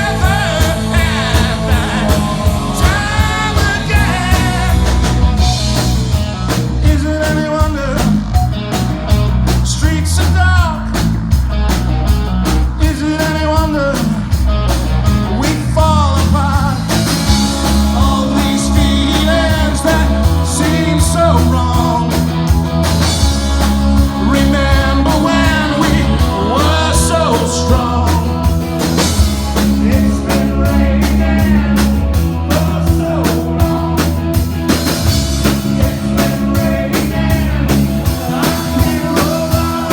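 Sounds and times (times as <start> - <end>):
person singing: 0.0 - 5.6, 15.4 - 22.3, 23.6 - 39.9
rock band playing live: 0.0 - 39.9.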